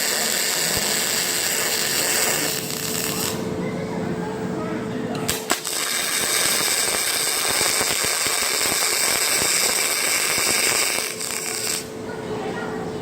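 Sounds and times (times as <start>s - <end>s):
welding arc crackling: 0.0s - 3.5s, 5.2s - 12.0s.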